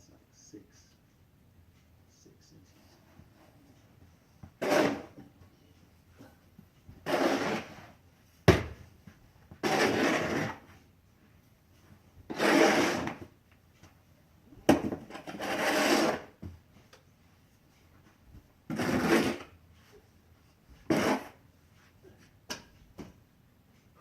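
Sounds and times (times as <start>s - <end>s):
snow shovel scraping snow: 4.6s - 5.2s, 7.0s - 7.9s, 9.6s - 10.6s, 12.3s - 13.1s, 15.3s - 16.3s, 18.7s - 19.4s, 20.9s - 21.4s.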